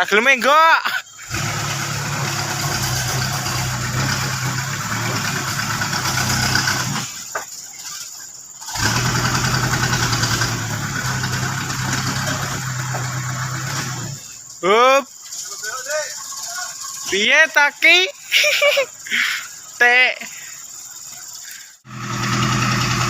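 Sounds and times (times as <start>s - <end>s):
truck engine under load: 1.2s - 7.5s, 8.3s - 14.5s, 21.9s - 23.0s.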